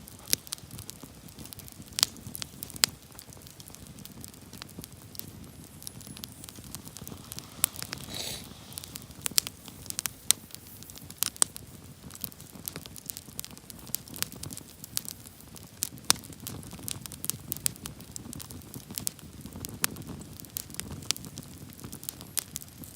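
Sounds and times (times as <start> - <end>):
campfire crackling and popping: 0.0 - 22.9
low rumble of flames: 0.0 - 22.9
brief hiss: 6.3 - 10.1.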